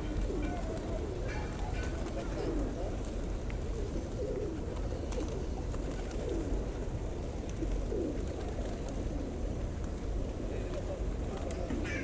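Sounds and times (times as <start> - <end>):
pigeons cooing: 0.0 - 9.4.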